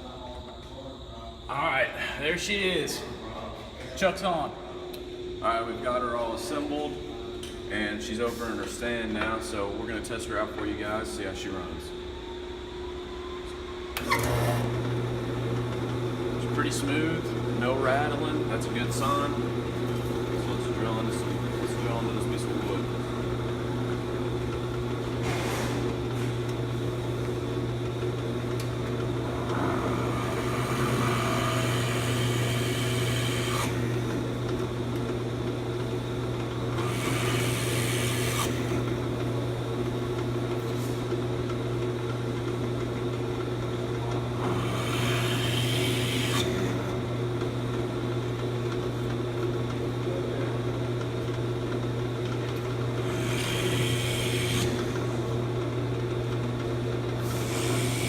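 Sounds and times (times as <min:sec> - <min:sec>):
drill press motor hum: 0:04.2 - 0:58.0
drill bit cutting wood: 0:29.6 - 0:34.2, 0:36.7 - 0:38.9, 0:44.4 - 0:47.0, 0:53.0 - 0:55.2, 0:57.2 - 0:58.0.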